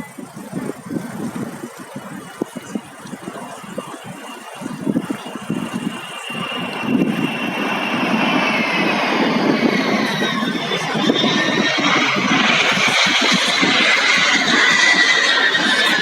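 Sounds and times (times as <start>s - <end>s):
military aircraft flying over: 3.4s - 16.0s
high engine whine: 4.1s - 16.0s.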